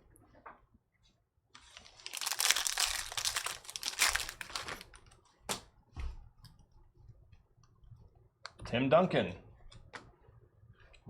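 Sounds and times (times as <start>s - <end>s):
foil wrapper crinkling: 1.6s - 5.1s.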